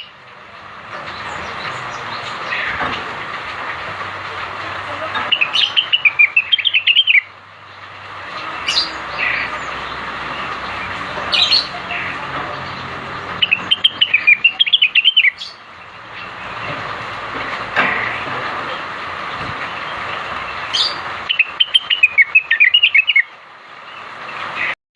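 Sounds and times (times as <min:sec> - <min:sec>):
bird singing high chirps: 0:05.2 - 0:07.3, 0:08.4 - 0:16.6, 0:20.6 - 0:23.3.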